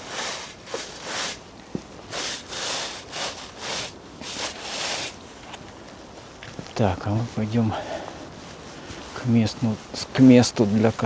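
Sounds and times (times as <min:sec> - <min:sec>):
brush scrubbing boot soles: 0:00.0 - 0:05.7, 0:08.3 - 0:11.0.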